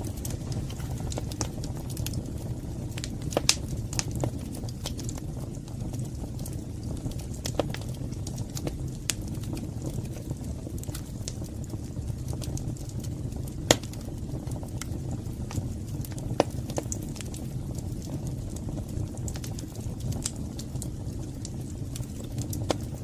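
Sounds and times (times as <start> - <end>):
fire crackling and popping: 0.0 - 23.0
fire flames rumbling: 0.0 - 23.0.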